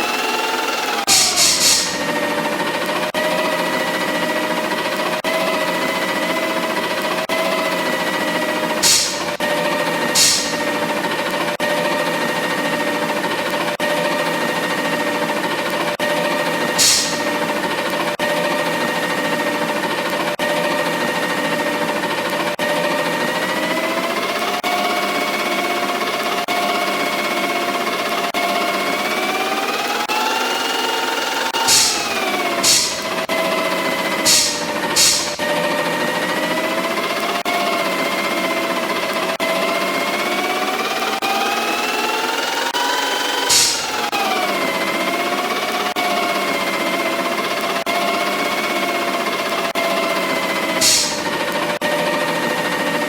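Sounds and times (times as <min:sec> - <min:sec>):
garbage truck mechanical whine: 0:00.0 - 0:53.0
air hissing: 0:01.1 - 0:02.3, 0:08.8 - 0:09.5, 0:10.2 - 0:10.9, 0:16.8 - 0:17.5, 0:31.6 - 0:33.3, 0:34.3 - 0:35.5, 0:43.5 - 0:44.1, 0:50.8 - 0:51.4
machine chattering: 0:01.1 - 0:02.3, 0:08.8 - 0:09.5, 0:10.2 - 0:10.9, 0:16.8 - 0:17.5, 0:31.6 - 0:33.3, 0:34.3 - 0:35.5, 0:43.5 - 0:44.1, 0:50.8 - 0:51.4.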